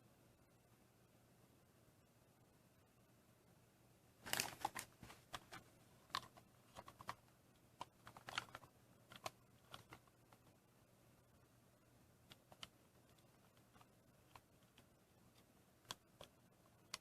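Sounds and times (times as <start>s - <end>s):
plastic parts clicking and rattling: 4.2s - 7.2s, 7.8s - 10.5s.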